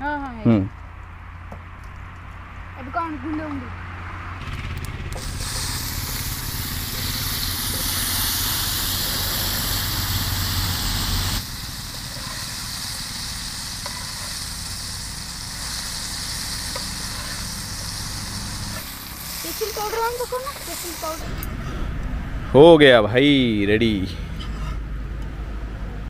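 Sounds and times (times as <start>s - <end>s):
food sizzling in hot oil: 5.2s - 21.4s.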